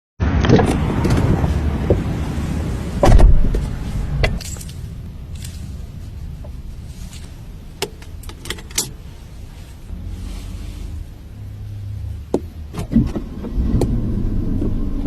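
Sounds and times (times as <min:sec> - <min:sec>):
low rumble: 0:00.2 - 0:15.0
heavy thumps: 0:03.0 - 0:05.3.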